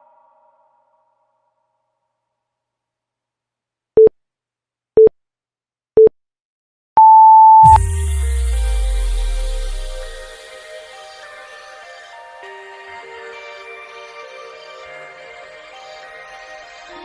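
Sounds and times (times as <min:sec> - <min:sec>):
short low beeps: 0:07.0 - 0:10.3
long higher beep: 0:07.0 - 0:10.5
electronic music with heavy bass: 0:07.6 - 0:10.5.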